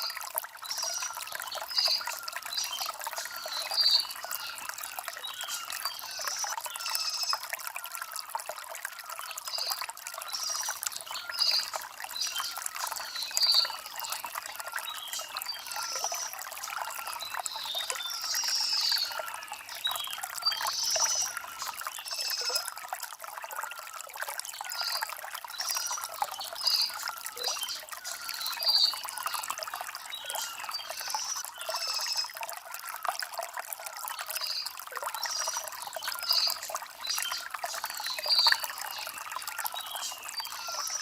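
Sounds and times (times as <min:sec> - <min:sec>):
water trickling over stones: 0:00.0 - 0:41.0.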